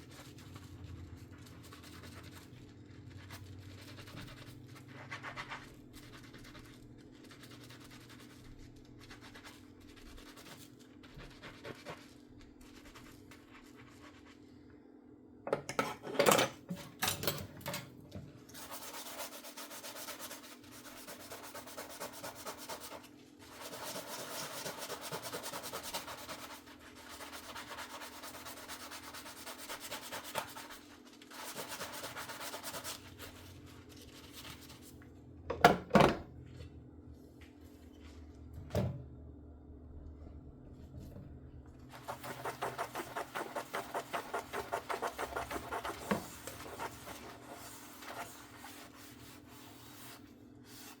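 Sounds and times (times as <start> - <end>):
sponge scrubbing dishes: 0.0 - 14.5, 18.5 - 34.9, 41.9 - 51.0
faint low hum: 0.0 - 50.8.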